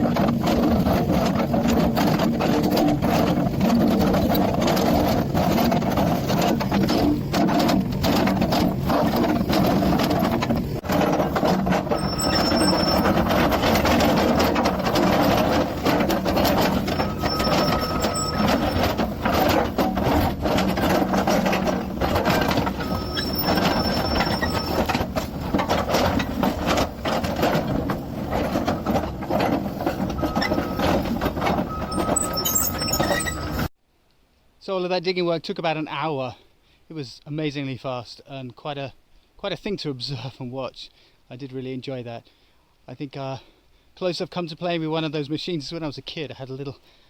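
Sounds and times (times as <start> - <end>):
excavator engine under load: 0.0 - 33.7
rock and metal rattling and clanking: 0.0 - 33.7
short high squeals: 11.9 - 13.8, 16.4 - 20.2, 22.6 - 24.9, 31.7 - 33.7.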